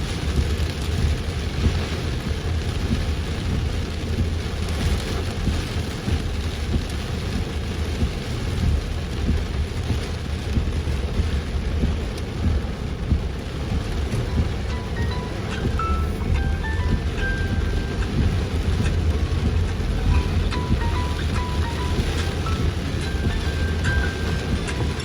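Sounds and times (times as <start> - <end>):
heavy rain falling: 0.0 - 25.0
low rumble: 5.4 - 25.0.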